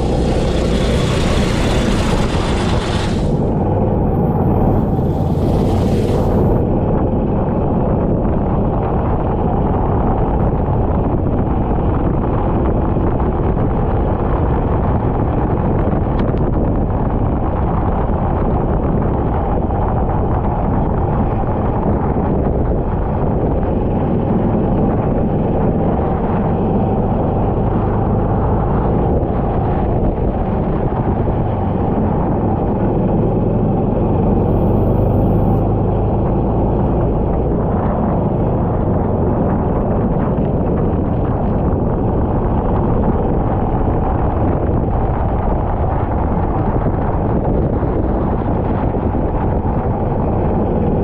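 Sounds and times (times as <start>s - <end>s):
kart engine running: 0.0s - 7.8s
wind buffeting microphone: 0.0s - 51.0s.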